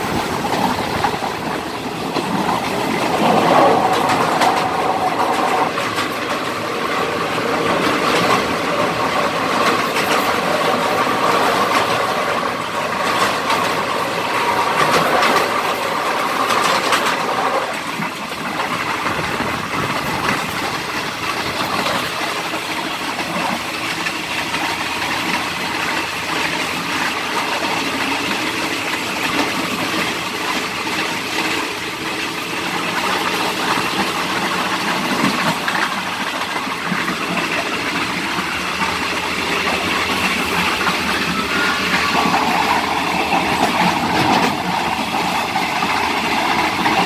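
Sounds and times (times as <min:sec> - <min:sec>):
train running noise from inside: 0:00.0 - 0:47.0.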